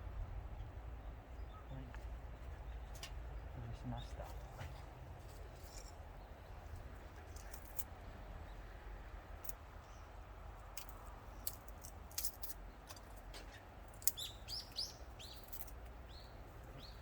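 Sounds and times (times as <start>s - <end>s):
low outdoor rumble: 0.0s - 17.0s
bird chirping: 1.0s - 4.3s, 12.6s - 17.0s.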